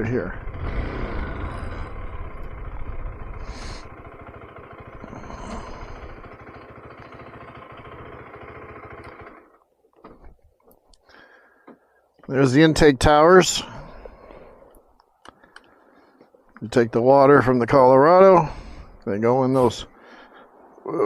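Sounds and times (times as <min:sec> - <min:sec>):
motorcycle engine idling: 0:00.0 - 0:10.3
faint clicks: 0:14.0 - 0:16.7.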